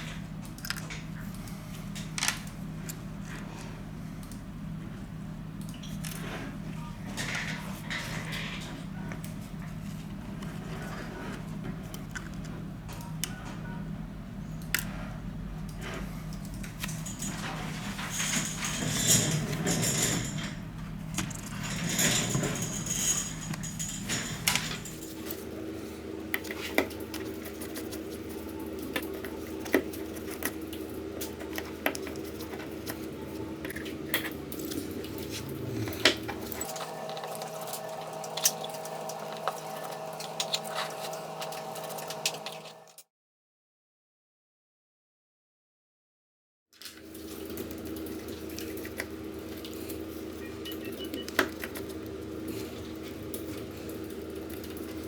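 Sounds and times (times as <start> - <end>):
steady electrical hum: 0.0 - 43.0
metal tools clicking and scraping: 16.4 - 25.4.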